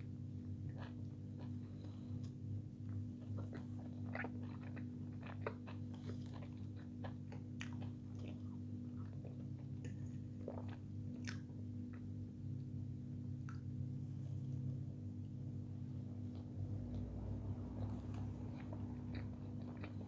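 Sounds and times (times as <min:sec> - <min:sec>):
steady low hum: 0:00.0 - 0:20.0
person crunching fried food: 0:03.2 - 0:08.4, 0:16.9 - 0:20.0.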